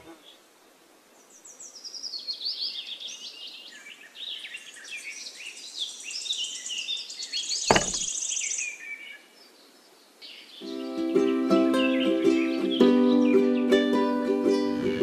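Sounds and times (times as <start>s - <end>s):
birds chirping and singing: 1.7s - 13.9s
sharp knock: 7.7s - 8.1s.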